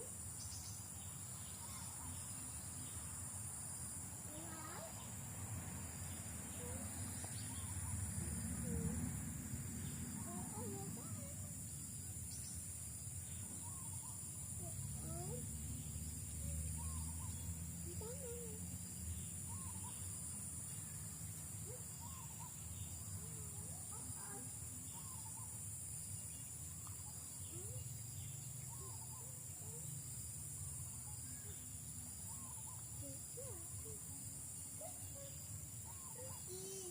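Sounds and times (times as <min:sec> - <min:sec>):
crickets chorus: 0:00.0 - 0:36.9
high insect drone: 0:00.0 - 0:36.9
bird chirps: 0:09.8 - 0:21.0, 0:24.2 - 0:25.6.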